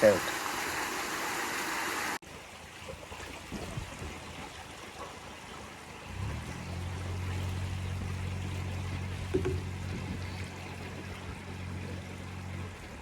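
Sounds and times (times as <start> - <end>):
trickling water: 0.0 - 13.0
boat engine humming: 4.6 - 13.0
small knocks: 9.3 - 9.7.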